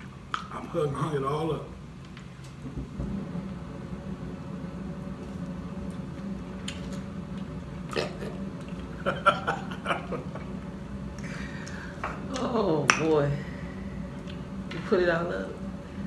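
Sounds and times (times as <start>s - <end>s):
steady low hum: 0.0s - 16.0s
man chewing food: 5.0s - 12.0s.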